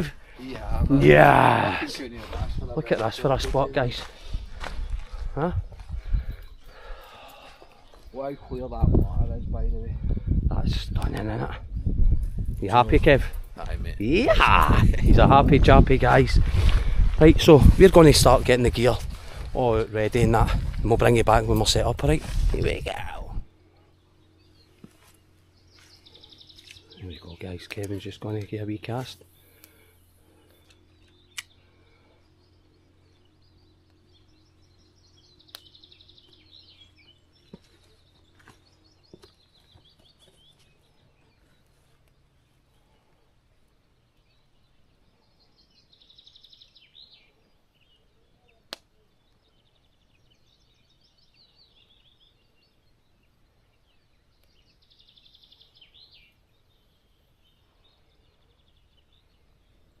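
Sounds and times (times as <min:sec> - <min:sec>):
songbird trilling: 0:28.2 - 0:41.4
sharp single clicks: 0:30.6 - 0:31.6, 0:48.7 - 0:48.9.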